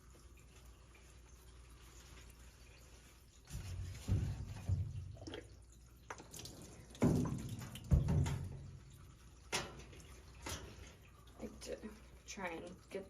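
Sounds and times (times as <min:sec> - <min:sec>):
water dripping and sloshing: 0:00.0 - 0:13.0.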